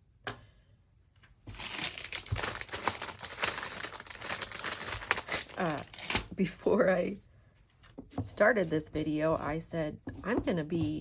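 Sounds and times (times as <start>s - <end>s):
paper or plastic crumpling: 1.5s - 6.3s.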